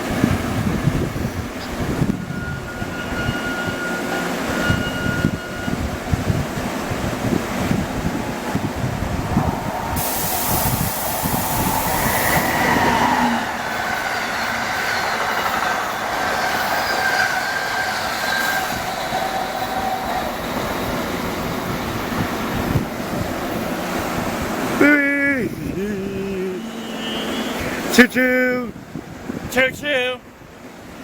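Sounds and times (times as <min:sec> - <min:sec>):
faint high-pitched squealing: 0:10.0 - 0:20.9, 0:26.2 - 0:27.9
train wheels clattering on rails: 0:10.0 - 0:24.8.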